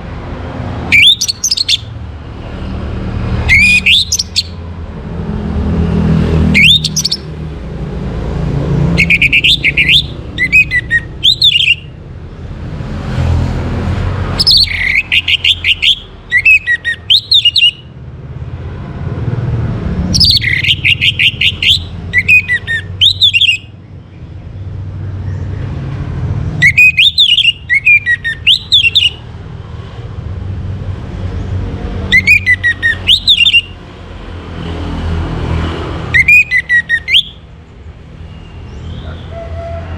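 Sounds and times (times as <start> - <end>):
thrush singing whistled phrases: 0.8 - 2.0, 3.4 - 4.6, 6.4 - 7.3, 8.8 - 12.0, 14.3 - 17.9, 20.1 - 23.8, 26.6 - 29.3, 32.1 - 33.8, 36.1 - 37.5.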